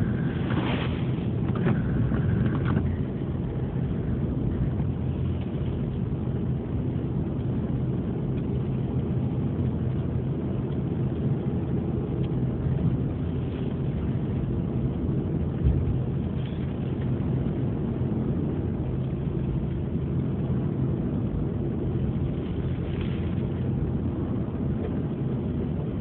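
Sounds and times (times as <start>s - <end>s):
ferry engines droning: 0.0s - 26.0s.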